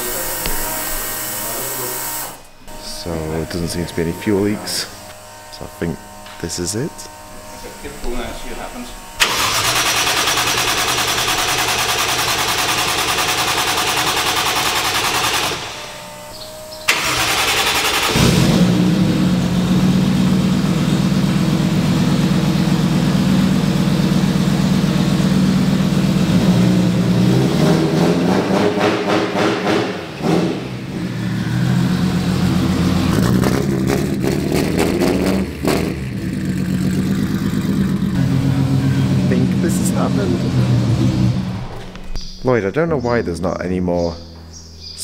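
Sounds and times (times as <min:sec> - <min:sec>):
starter motor cranking: 0:00.0 - 0:18.9
engine running: 0:00.0 - 0:43.0.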